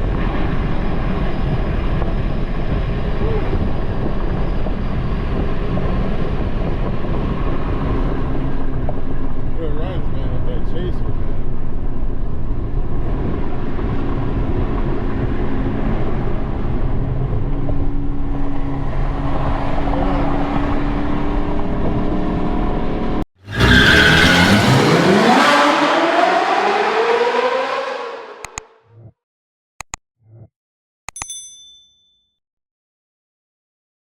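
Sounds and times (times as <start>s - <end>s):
car engine and road rumble: 0.0s - 29.1s
car engine accelerating hard: 12.4s - 28.8s.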